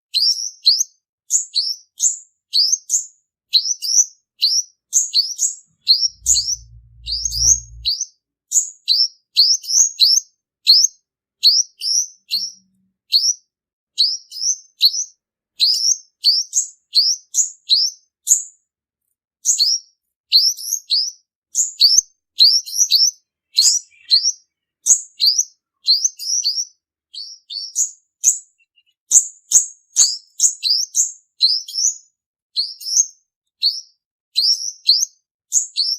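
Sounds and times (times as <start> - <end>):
bird chirping high and sharp: 1.3 - 8.0, 20.5 - 32.0.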